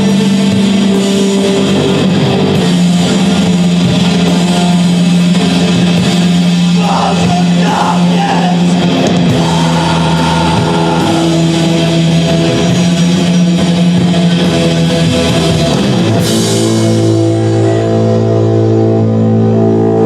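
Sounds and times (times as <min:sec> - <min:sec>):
rock band playing distorted guitar: 0:00.0 - 0:20.0.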